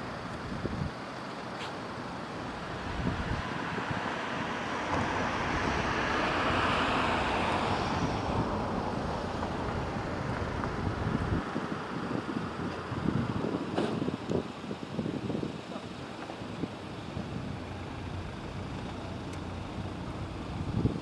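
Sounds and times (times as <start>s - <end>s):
wind buffeting microphone: 0.0s - 1.0s, 1.8s - 21.0s
vehicle passing by: 2.3s - 11.5s.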